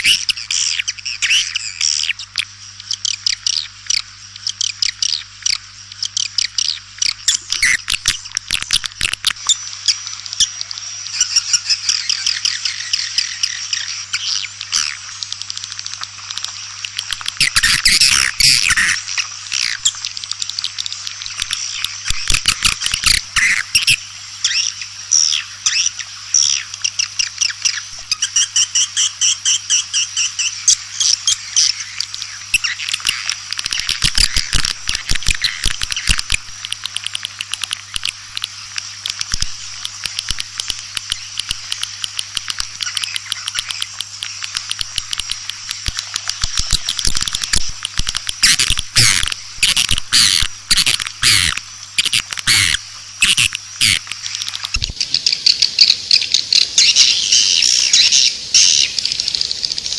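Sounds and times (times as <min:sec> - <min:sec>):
steady low hum: 0:00.0 - 0:59.9
swiftlets twittering: 0:16.4 - 0:55.4.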